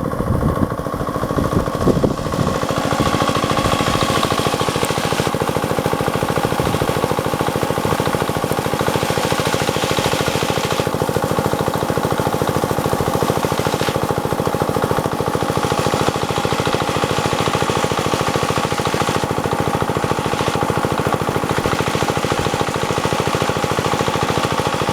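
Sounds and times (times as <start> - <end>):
diesel pump engine chugging: 0.0 - 24.9.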